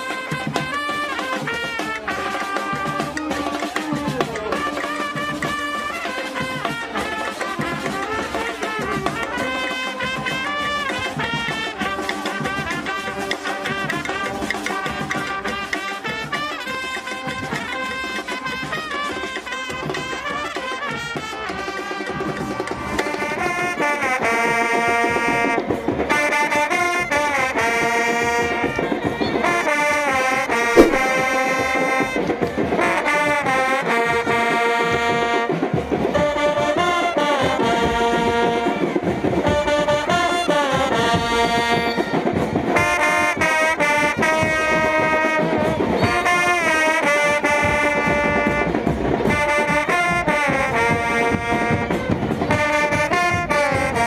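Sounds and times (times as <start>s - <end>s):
brass instruments playing melody: 0.0s - 24.8s, 42.8s - 54.0s
sharp knock: 30.8s - 31.2s.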